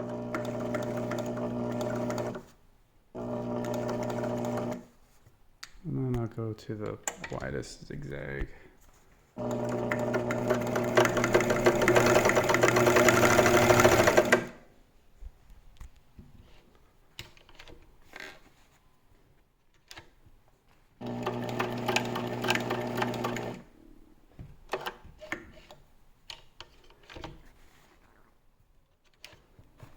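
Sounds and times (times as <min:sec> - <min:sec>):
sewing machine running: 0:00.0 - 0:02.5, 0:03.2 - 0:04.9, 0:09.4 - 0:14.6, 0:21.0 - 0:23.7.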